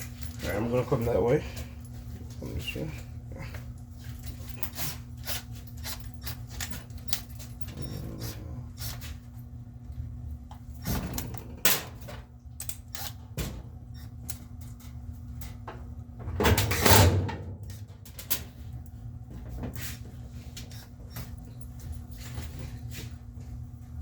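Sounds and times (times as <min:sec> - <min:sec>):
steady low hum: 0:00.0 - 0:24.0
washing machine knocking and clattering: 0:10.5 - 0:12.4, 0:13.3 - 0:13.9, 0:15.3 - 0:18.6.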